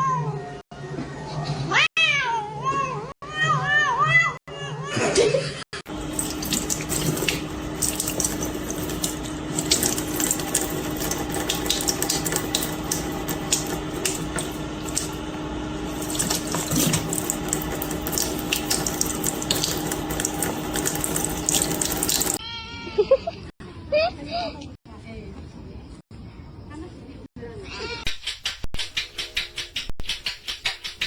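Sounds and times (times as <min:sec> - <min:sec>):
water running and splashing: 0:05.9 - 0:22.4.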